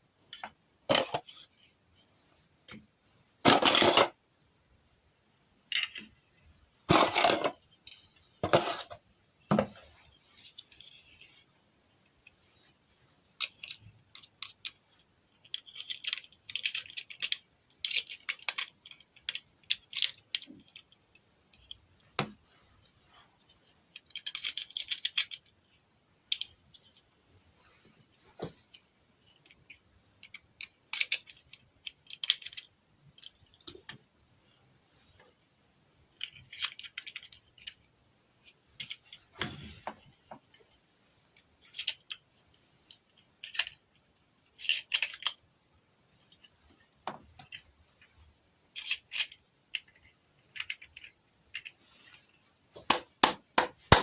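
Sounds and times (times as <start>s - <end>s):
plastic toy pieces clicking: 5.7s - 6.2s, 13.4s - 21.8s, 23.9s - 27.1s, 29.2s - 34.0s, 36.1s - 39.2s, 41.4s - 42.2s, 42.9s - 43.8s, 44.4s - 45.4s, 47.3s - 48.0s, 48.7s - 51.8s.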